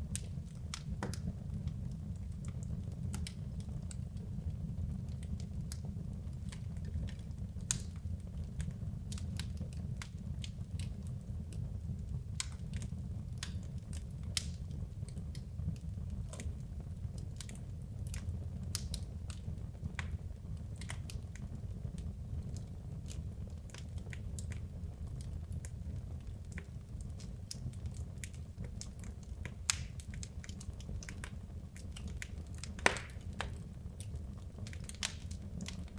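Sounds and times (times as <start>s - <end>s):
fire crackling and popping: 0.0s - 35.9s
low fire rumble: 0.0s - 35.9s.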